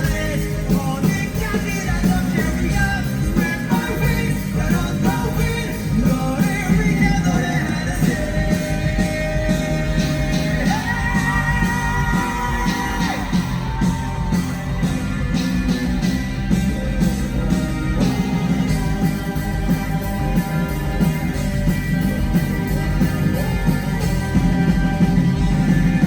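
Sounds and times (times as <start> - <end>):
live pop-rock band playing: 0.0 - 26.0
singing or crowd shouts: 9.0 - 15.0.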